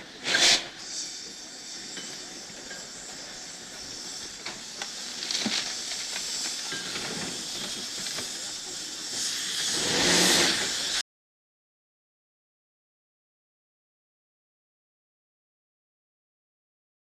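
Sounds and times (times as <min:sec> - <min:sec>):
rush of steam: 0:00.0 - 0:11.0
steam shovel hissing steam: 0:00.0 - 0:11.0.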